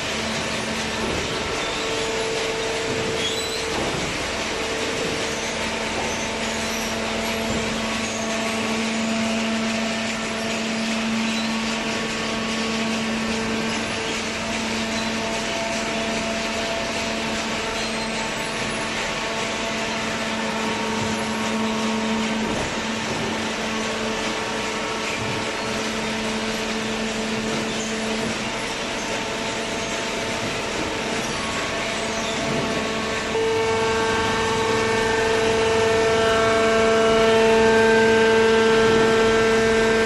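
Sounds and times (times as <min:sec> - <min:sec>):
baler machine humming: 0:00.0 - 0:40.0
high machine tone: 0:17.5 - 0:40.0.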